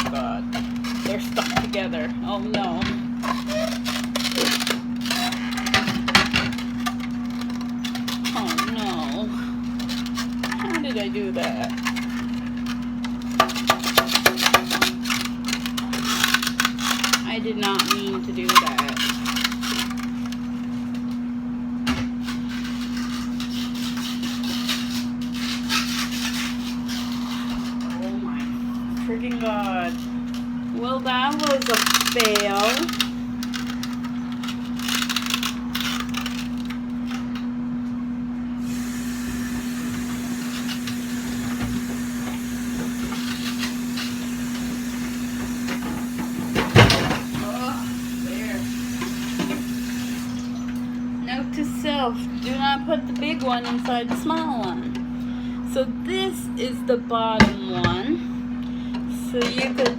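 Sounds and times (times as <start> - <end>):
plastic cookware rubbing and clicking: 0.0 - 21.1, 22.1 - 36.8
steady low hum: 0.0 - 59.9.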